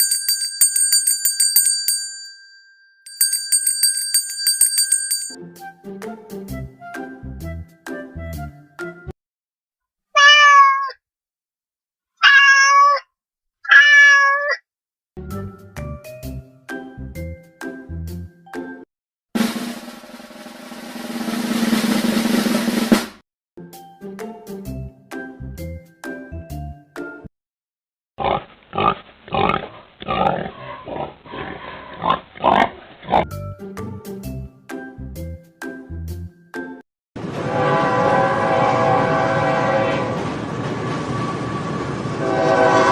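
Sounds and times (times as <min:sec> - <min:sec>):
light children's music: 0:05.4 - 0:09.2, 0:15.2 - 0:18.8, 0:23.6 - 0:27.3, 0:33.3 - 0:36.8
cat meowing: 0:10.2 - 0:11.0, 0:12.2 - 0:14.6
music with drums: 0:19.4 - 0:23.2
pig grunting: 0:28.2 - 0:33.3.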